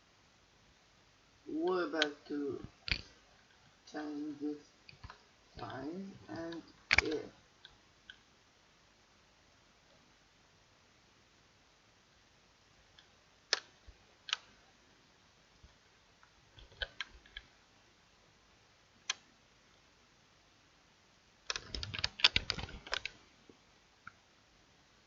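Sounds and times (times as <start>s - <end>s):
keyboard keystrokes: 4.9s - 7.3s, 16.6s - 17.4s, 21.5s - 23.2s
mouse clicks: 4.9s - 8.2s.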